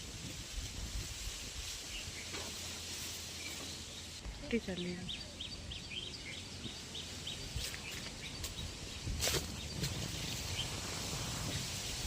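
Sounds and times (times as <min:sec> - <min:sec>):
outdoor background noise: 0:00.0 - 0:12.0
small bird chirping: 0:03.3 - 0:11.6.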